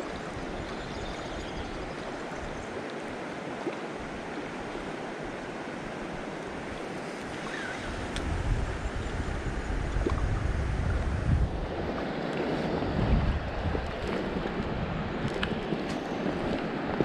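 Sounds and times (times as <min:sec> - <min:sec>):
flowing river water: 0:00.0 - 0:17.0
wind buffeting microphone: 0:06.2 - 0:17.0.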